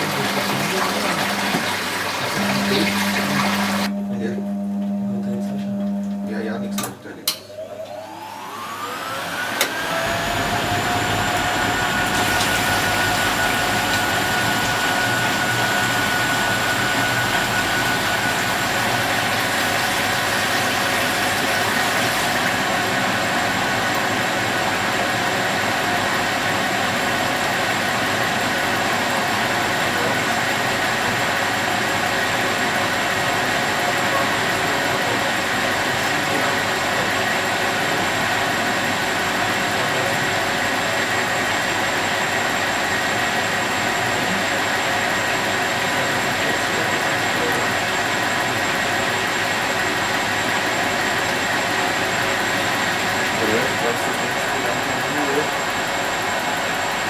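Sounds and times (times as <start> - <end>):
washing machine spinning: 0.0 - 57.0
click: 5.6 - 7.9.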